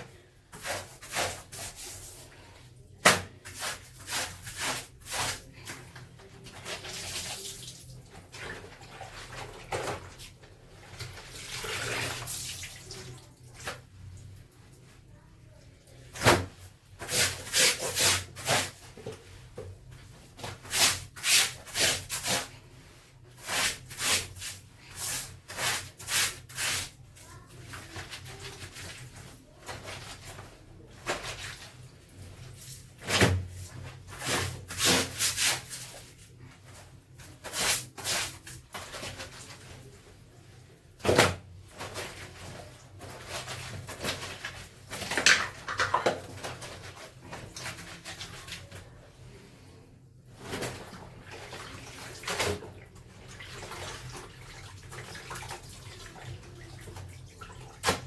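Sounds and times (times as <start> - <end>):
clothes scrubbed by hand: 0.6 - 2.4, 16.4 - 40.0.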